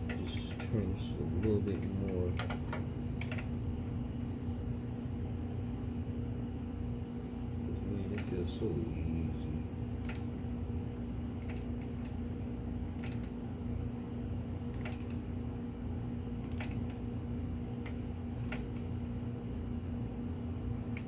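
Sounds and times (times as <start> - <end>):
steady low hum: 0.0 - 21.0
wrench clicking: 1.4 - 2.6, 11.4 - 11.9, 13.0 - 13.3, 14.7 - 15.2, 16.4 - 17.0.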